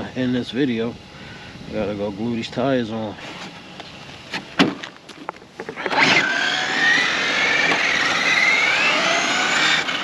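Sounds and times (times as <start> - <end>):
rc car electric motor whining: 5.8 - 10.0.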